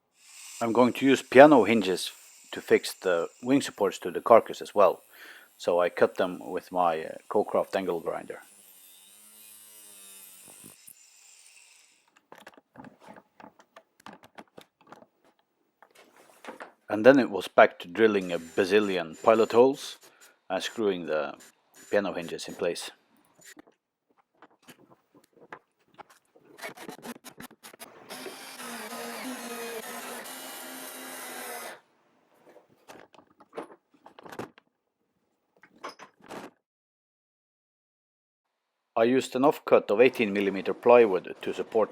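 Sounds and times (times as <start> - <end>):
angle grinder cutting metal: 0.2 - 12.0, 18.2 - 20.0, 27.9 - 31.8.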